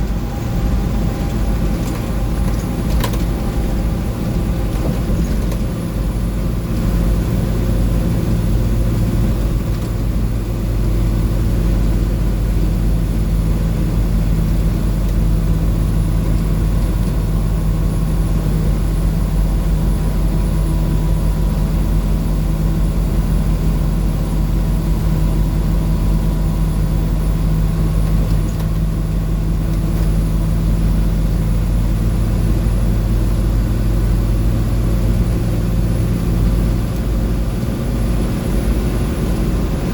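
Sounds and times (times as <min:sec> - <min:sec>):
road noise: 0:00.0 - 0:19.0, 0:27.8 - 0:39.9
diesel bus engine drone: 0:00.0 - 0:39.9.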